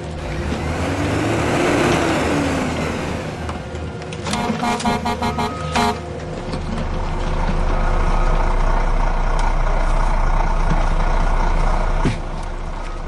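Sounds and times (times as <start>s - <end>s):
vehicle engine hum: 0.0s - 13.0s
vehicle horn toots: 4.3s - 6.1s.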